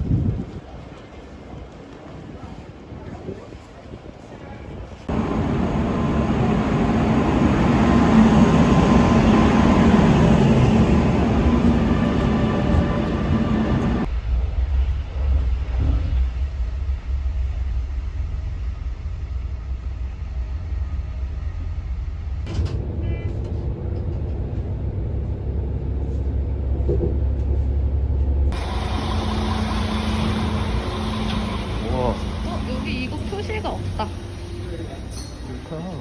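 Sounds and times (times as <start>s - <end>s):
vehicle rumble from inside: 21.7s - 35.3s.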